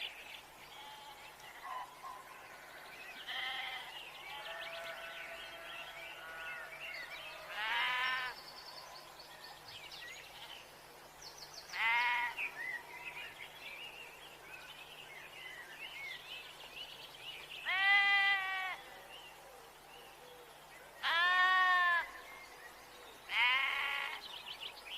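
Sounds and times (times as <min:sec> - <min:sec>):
sheep bleating: 0:03.3 - 0:05.1, 0:07.5 - 0:08.3, 0:17.7 - 0:18.8, 0:21.0 - 0:22.0, 0:23.3 - 0:24.2.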